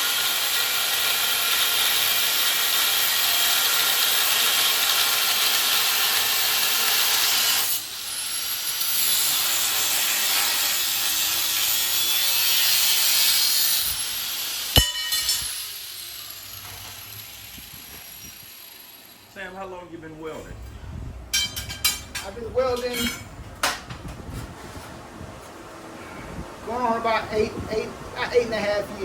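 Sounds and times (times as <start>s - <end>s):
angle grinder cutting metal: 0.0s - 19.4s
ringing metal clank: 14.8s - 15.6s, 21.3s - 23.3s.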